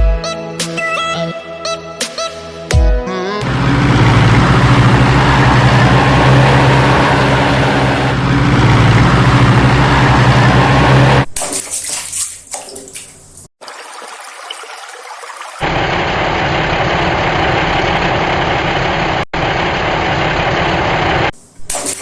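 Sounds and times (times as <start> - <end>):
rushing water: 9.2 - 15.8.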